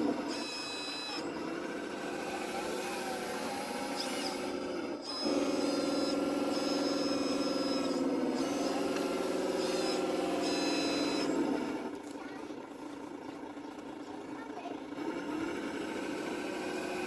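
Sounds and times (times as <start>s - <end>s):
high thin whines: 0.0s - 12.0s
model machine engine drone: 0.0s - 17.0s.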